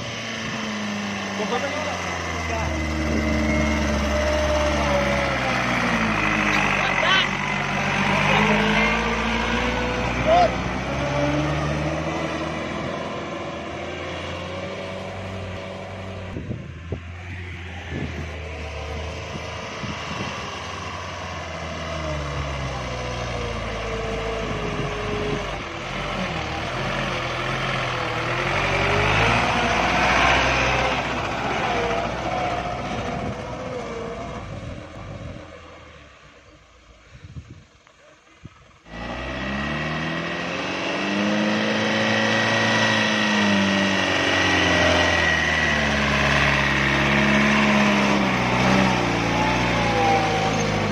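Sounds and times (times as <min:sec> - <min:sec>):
truck engine working hard: 0:00.0 - 0:36.6, 0:38.5 - 0:50.9.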